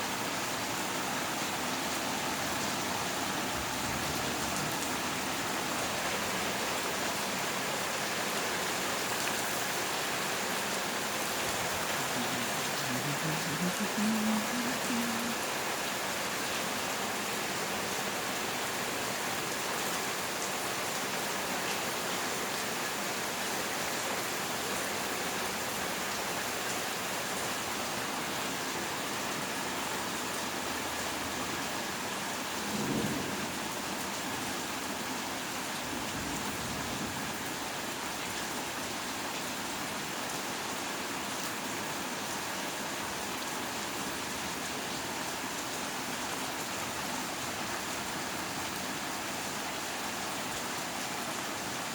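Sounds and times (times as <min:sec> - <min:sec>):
heavy rain falling: 0:00.0 - 0:51.9
low rumble of thunder: 0:32.7 - 0:33.8.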